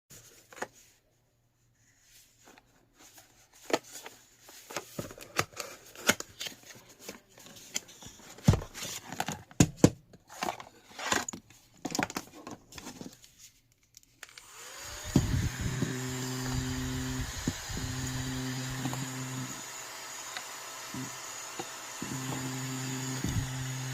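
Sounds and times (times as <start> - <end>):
electric fan humming: 14.4 - 23.9.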